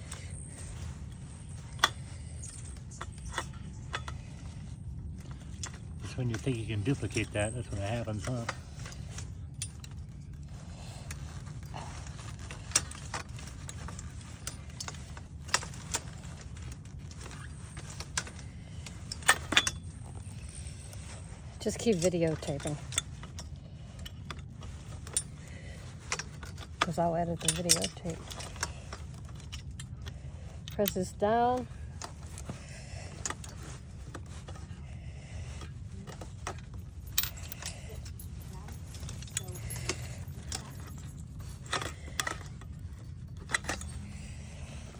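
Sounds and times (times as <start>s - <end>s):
steady low hum: 0.0s - 44.9s
umbrella parts clicking: 0.0s - 44.9s.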